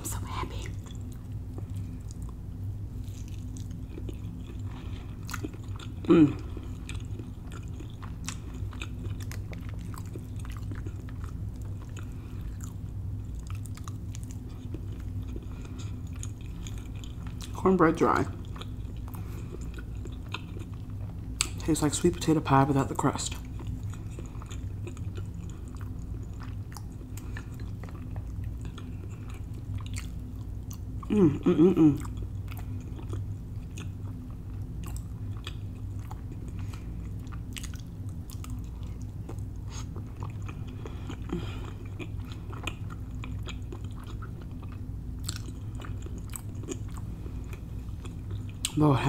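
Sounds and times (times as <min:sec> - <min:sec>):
steady low hum: 0:00.0 - 0:49.0
wet chewing and mouth clicks: 0:03.0 - 0:17.6, 0:18.4 - 0:21.6, 0:23.3 - 0:31.1, 0:31.9 - 0:48.8
person humming mmm: 0:06.0 - 0:06.6, 0:31.0 - 0:32.2.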